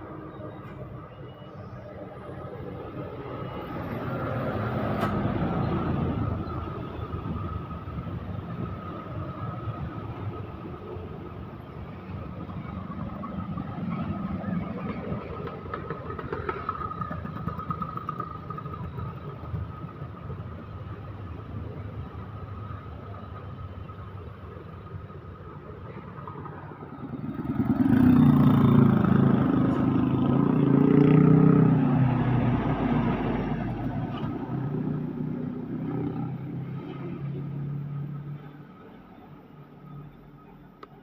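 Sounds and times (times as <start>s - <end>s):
traffic rumble: 0.0s - 41.0s
vehicle passing close: 26.5s - 37.9s.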